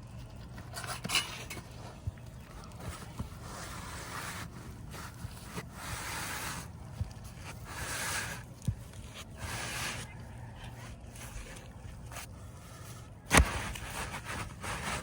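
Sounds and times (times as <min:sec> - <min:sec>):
roof shingles scraping: 0:12.2 - 0:15.0.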